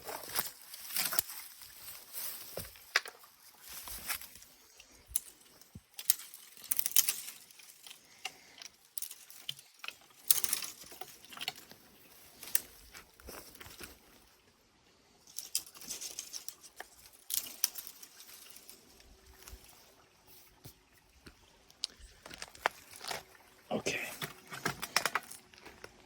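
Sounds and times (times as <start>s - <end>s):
footsteps crunching through dry leaves: 0.0s - 4.6s, 22.0s - 23.6s.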